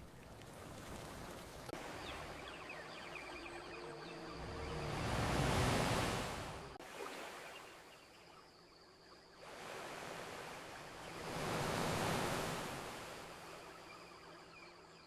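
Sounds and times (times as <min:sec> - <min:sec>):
ocean waves washing onto beach: 0:00.0 - 0:07.6, 0:09.4 - 0:13.7.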